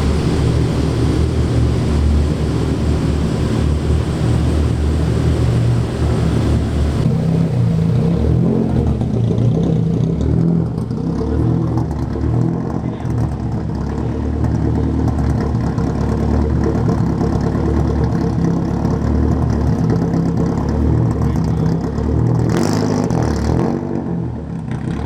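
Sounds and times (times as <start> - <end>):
car exhaust rumbling: 0.0 - 13.7.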